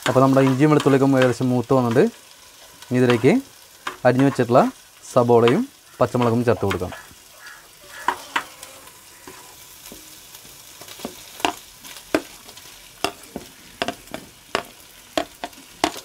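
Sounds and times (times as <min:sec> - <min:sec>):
spatula scraping and tapping pot: 0:00.0 - 0:02.0, 0:08.0 - 0:08.6, 0:09.2 - 0:10.1, 0:10.8 - 0:12.4, 0:13.0 - 0:16.0
garlic sizzling in hot oil: 0:00.0 - 0:16.0.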